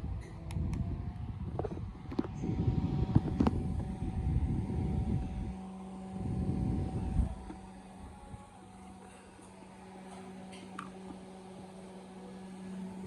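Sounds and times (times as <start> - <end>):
air gusting on microphone: 0.0 - 8.5
electric fan motor hum: 0.0 - 13.0.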